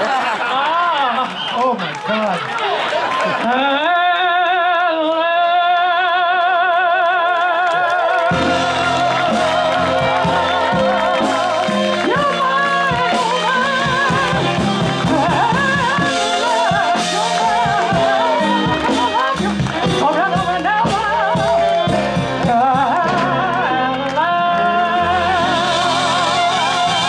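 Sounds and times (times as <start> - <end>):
latin band with bass: 8.3 - 27.0.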